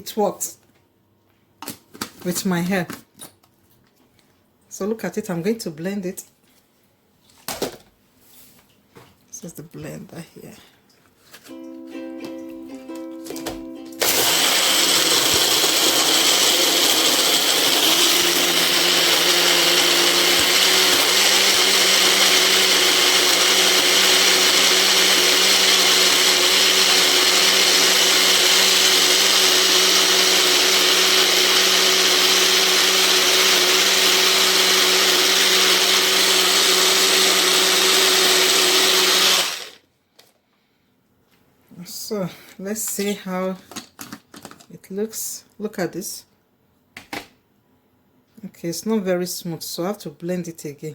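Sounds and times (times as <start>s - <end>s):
blender running: 14.0s - 39.8s.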